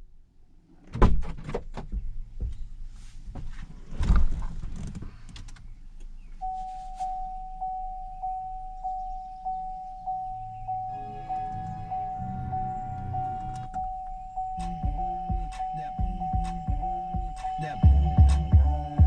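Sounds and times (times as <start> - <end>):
clicks and knocks in a car: 0.8 - 5.7
pulsing electronic tone: 6.4 - 19.0.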